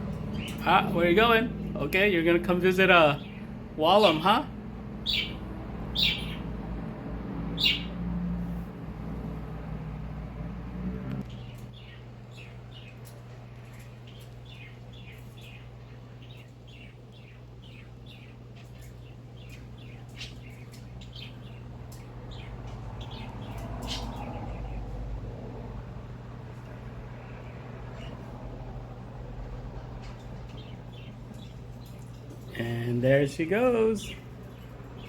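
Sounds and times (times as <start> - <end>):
pet bird chirping: 0.0 - 0.9, 3.0 - 4.4, 5.0 - 6.6, 7.5 - 8.0, 11.3 - 25.1, 30.0 - 32.8
steady low hum: 0.0 - 35.0.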